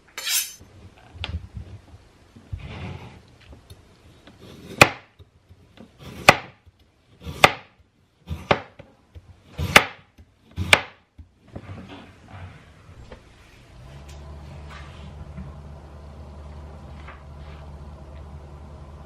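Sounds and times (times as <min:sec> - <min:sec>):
knife chopping on cutting board: 0:04.4 - 0:05.2, 0:06.0 - 0:08.8, 0:09.4 - 0:11.0.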